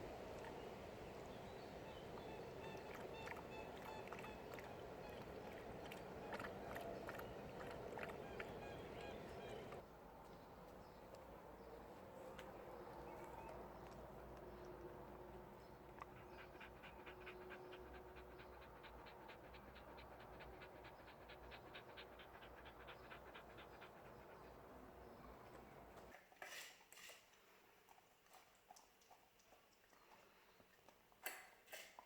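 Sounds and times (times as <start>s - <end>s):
dog panting: 2.5s - 9.8s, 15.6s - 26.1s.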